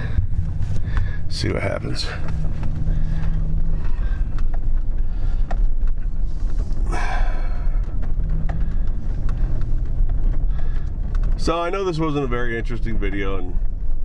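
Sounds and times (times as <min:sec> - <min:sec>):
person breathing: 0:00.0 - 0:01.3, 0:01.9 - 0:11.4
car engine rumble inside cabin: 0:00.0 - 0:14.0.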